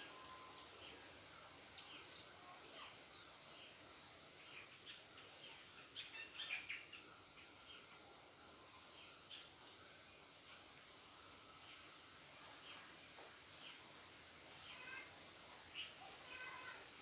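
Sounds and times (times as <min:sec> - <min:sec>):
faint bird chirps: 0:00.0 - 0:03.8, 0:04.4 - 0:08.0, 0:14.5 - 0:15.1.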